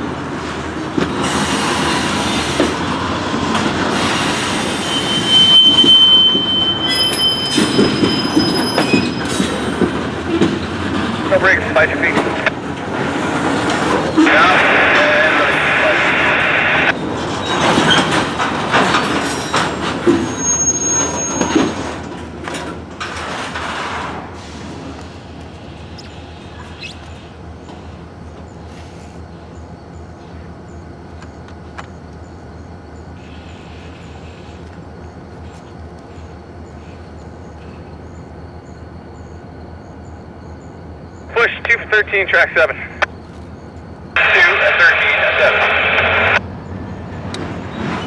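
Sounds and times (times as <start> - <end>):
train wheels and couplers clanking: 0.6 - 15.2, 16.9 - 26.7
high wheel squeal: 4.0 - 10.1, 18.9 - 22.0.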